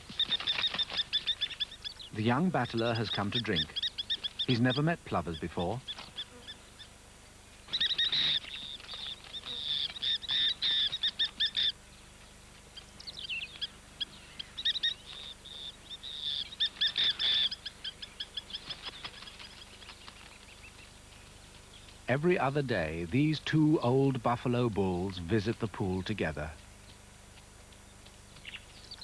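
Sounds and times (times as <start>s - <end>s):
plovers calling: 0.0s - 6.8s, 7.7s - 11.9s, 12.8s - 19.8s, 22.0s - 27.0s.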